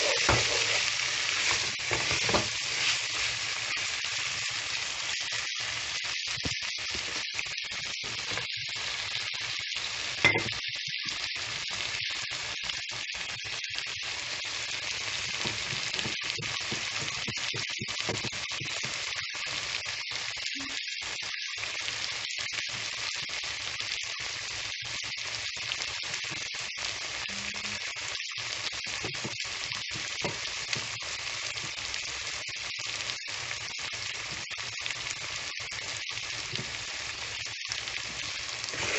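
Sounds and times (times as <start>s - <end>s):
food sizzling in hot oil: 0.0s - 38.9s.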